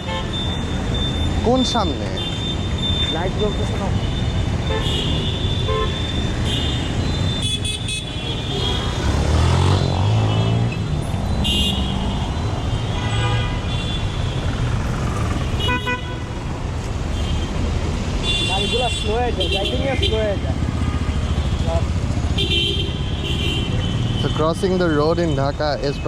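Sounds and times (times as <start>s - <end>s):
vehicle horns honking: 0.0s - 0.8s, 2.1s - 14.5s, 15.4s - 16.5s, 18.2s - 25.0s
traffic engines running: 0.0s - 26.0s
vehicle passing close: 8.7s - 12.6s.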